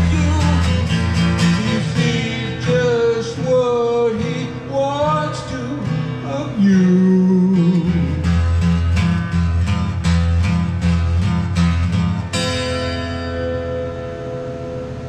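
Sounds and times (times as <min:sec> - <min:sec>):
bass line: 0:00.0 - 0:02.8, 0:06.8 - 0:12.9
guitar strumming: 0:00.0 - 0:15.0.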